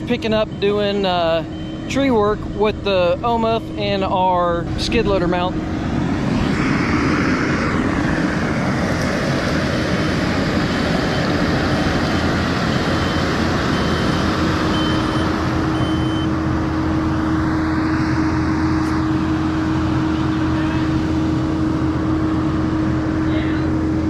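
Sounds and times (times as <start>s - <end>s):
reversing alarm beeping: 0.0s - 6.7s, 10.0s - 17.3s
diesel engine running: 0.0s - 24.0s
high whine rising and falling: 0.0s - 24.0s
hydraulic whine: 0.0s - 24.0s.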